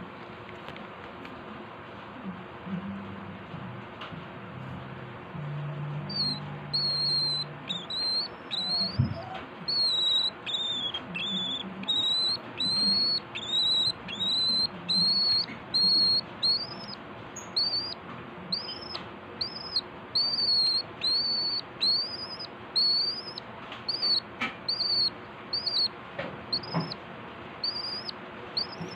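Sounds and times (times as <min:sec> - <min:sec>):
bird whistled calls: 0:06.1 - 0:25.9, 0:26.5 - 0:27.0, 0:27.6 - 0:28.9.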